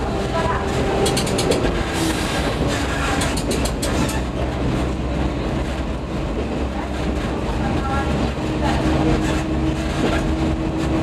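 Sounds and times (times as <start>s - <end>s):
railcar rumbling: 0.0s - 11.0s
wheel clicks over rail joints: 1.0s - 4.4s.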